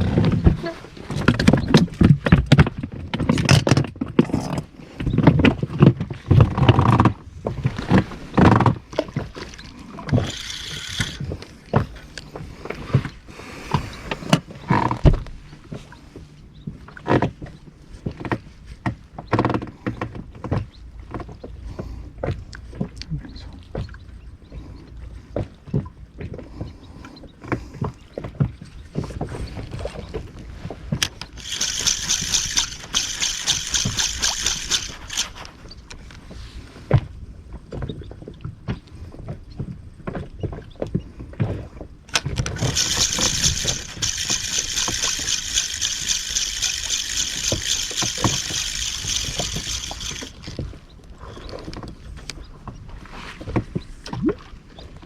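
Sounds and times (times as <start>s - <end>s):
fishing reel whirring and clicking: 10.0s - 11.5s, 31.0s - 35.7s, 42.1s - 50.6s.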